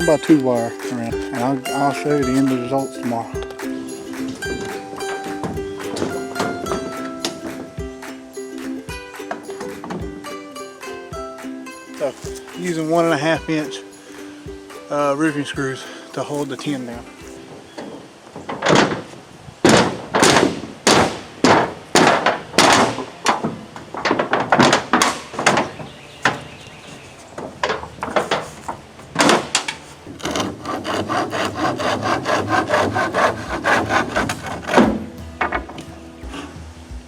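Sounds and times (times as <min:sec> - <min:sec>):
hand saw rasping on wood: 0:30.2 - 0:35.1.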